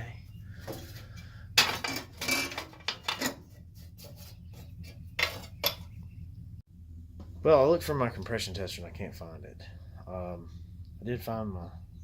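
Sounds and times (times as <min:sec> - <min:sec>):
steady low hum: 0:00.0 - 0:02.6, 0:03.3 - 0:12.0
metal tools clinking: 0:01.6 - 0:03.5.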